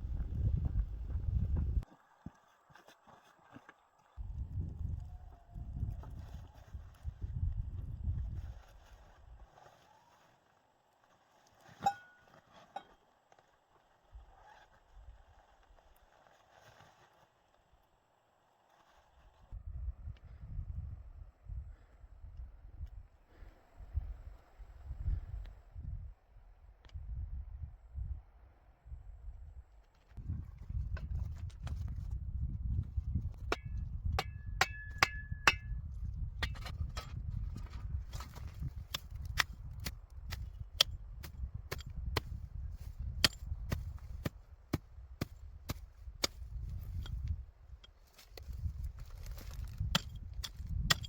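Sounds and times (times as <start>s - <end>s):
wind buffeting microphone: 0.0s - 1.9s, 4.2s - 8.9s, 26.9s - 51.0s
axe chopping wood: 49.4s - 51.0s.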